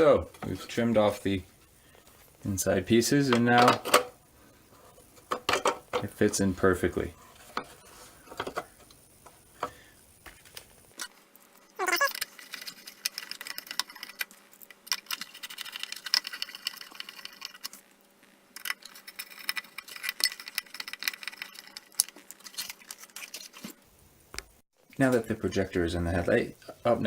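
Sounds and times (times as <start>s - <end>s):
short falling squeak: 11.8s - 12.1s
plastic parts clicking and rattling: 18.6s - 23.6s.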